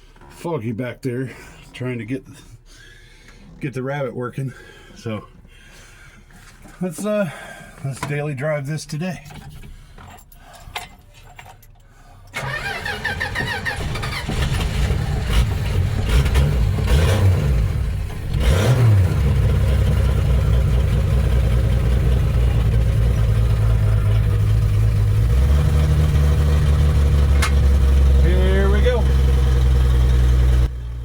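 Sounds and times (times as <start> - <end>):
car engine starting and revving: 12.4 - 31.0.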